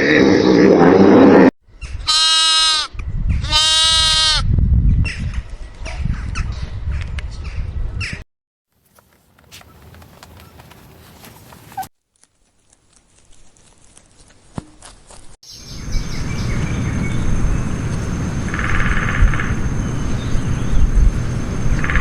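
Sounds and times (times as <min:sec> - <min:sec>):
rustling and handling noise: 0:08.7 - 0:15.4
drawn-out animal calls: 0:08.9 - 0:11.9.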